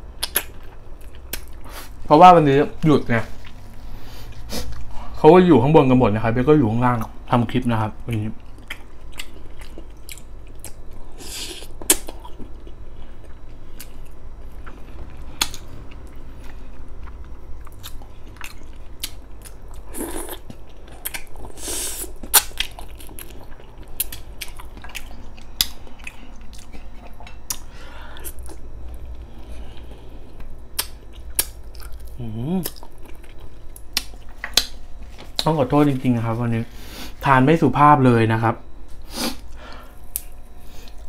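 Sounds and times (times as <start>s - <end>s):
person chewing and biting: 0.2s - 2.0s, 8.1s - 35.5s.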